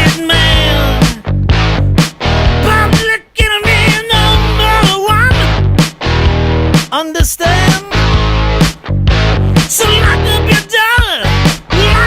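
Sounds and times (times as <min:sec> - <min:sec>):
person singing: 0:00.0 - 0:01.3, 0:02.6 - 0:05.5, 0:06.9 - 0:08.2, 0:09.6 - 0:12.0
rock music with distorted guitar: 0:00.0 - 0:12.0.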